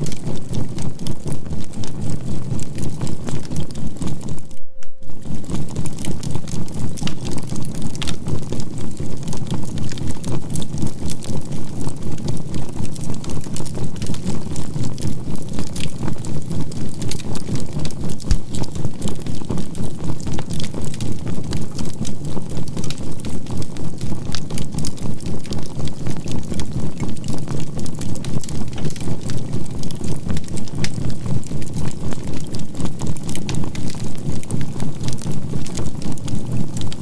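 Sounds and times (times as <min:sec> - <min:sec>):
campfire crackling and popping: 0:00.0 - 0:04.5, 0:05.2 - 0:37.0
pulsing synthesized hum: 0:00.0 - 0:09.0.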